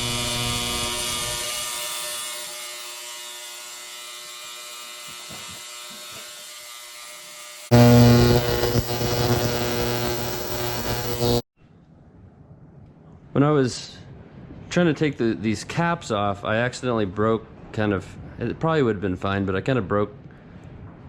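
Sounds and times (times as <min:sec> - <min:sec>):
fuel injector buzzing: 0:07.7 - 0:11.4.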